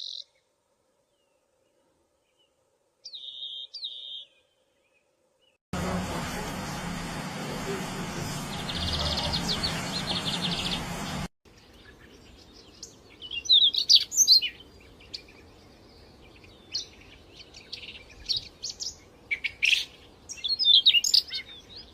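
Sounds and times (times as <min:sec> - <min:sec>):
songbirds chirping and trilling: 0:00.0 - 0:05.6, 0:07.3 - 0:21.9
fast noisy trill: 0:05.8 - 0:11.3.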